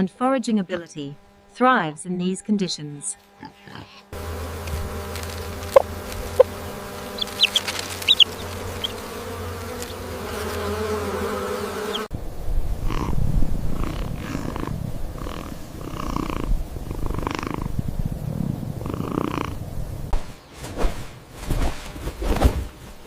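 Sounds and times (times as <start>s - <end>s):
low buzzing hum: 0.0s - 20.4s
low rumbling: 12.1s - 20.2s.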